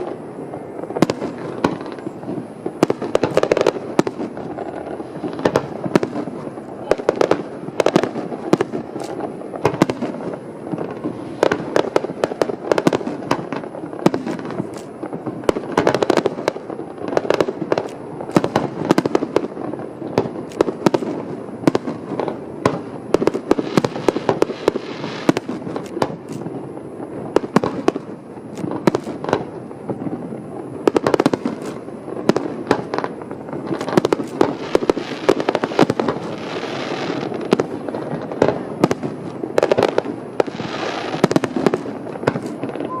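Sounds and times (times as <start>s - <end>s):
fireworks booming: 0.0s - 43.0s
fireworks crackling: 0.0s - 43.0s.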